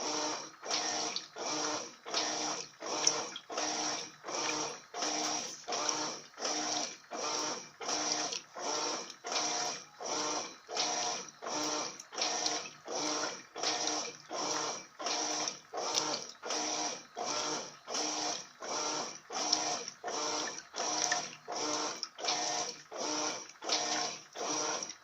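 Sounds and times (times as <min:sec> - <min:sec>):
washing machine agitating: 0:00.0 - 0:25.0.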